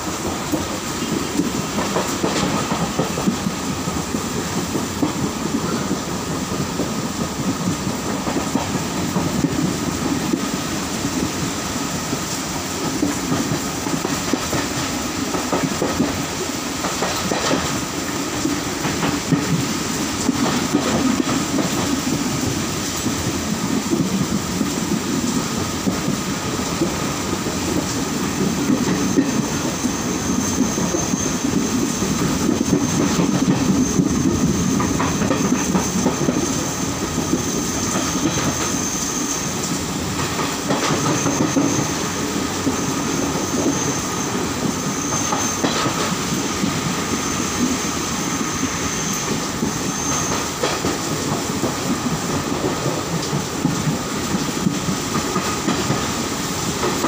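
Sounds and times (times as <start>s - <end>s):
wheels clacking over rail joints: 0.0s - 10.6s, 12.1s - 57.0s
train wheels rumbling on rails: 0.0s - 57.0s
high-pitched wheel squeal: 42.8s - 45.6s, 47.1s - 50.5s.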